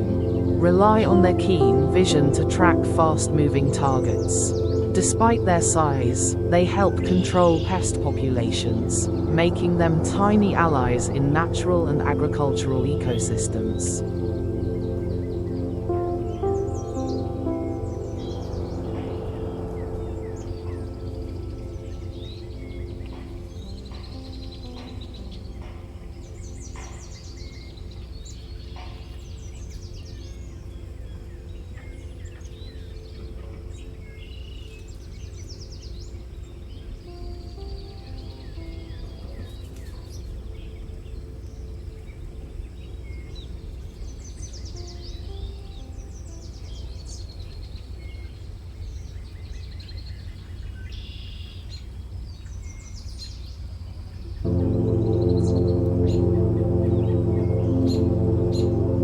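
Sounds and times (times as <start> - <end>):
low outdoor rumble: 0.0 - 26.4, 54.5 - 59.0
birds chirping and trilling: 0.0 - 53.6.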